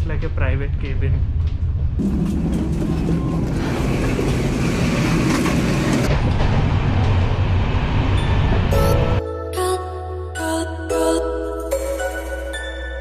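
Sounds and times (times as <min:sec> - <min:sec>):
train rumbling and rushing: 0:00.0 - 0:09.2.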